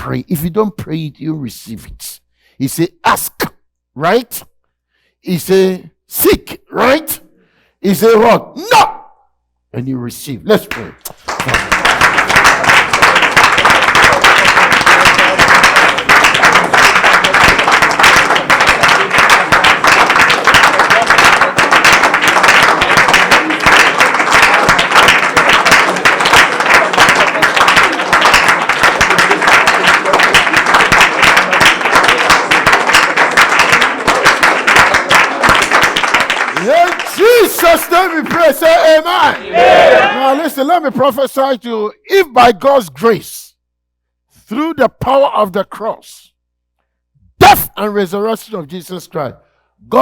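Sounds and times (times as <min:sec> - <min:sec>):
hand-clapping: 0:10.6 - 0:38.5
crowd praying aloud: 0:11.4 - 0:40.8.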